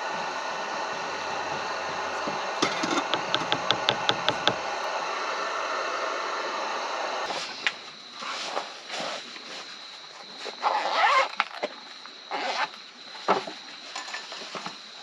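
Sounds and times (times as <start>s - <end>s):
steady hiss: 0.0s - 10.6s
rapid clicks: 1.2s - 4.9s
scattered knocks: 1.5s - 4.8s.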